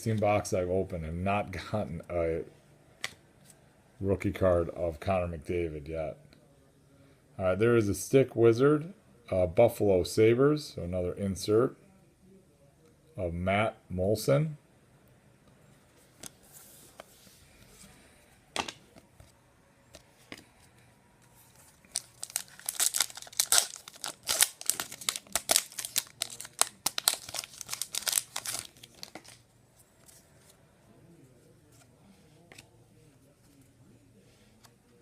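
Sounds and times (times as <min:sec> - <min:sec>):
card pack wrapper tearing: 0:21.8 - 0:29.4.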